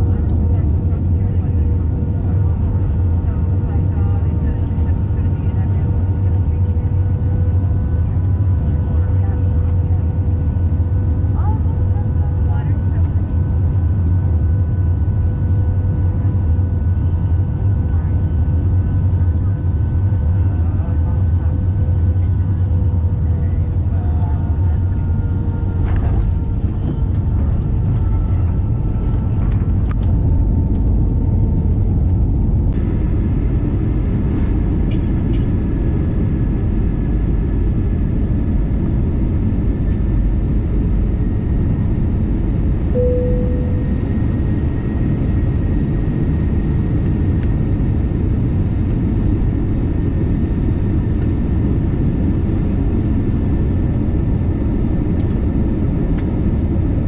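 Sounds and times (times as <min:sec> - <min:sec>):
airliner engines rumbling: 0:00.0 - 0:57.0
short tone: 0:42.9 - 0:44.4.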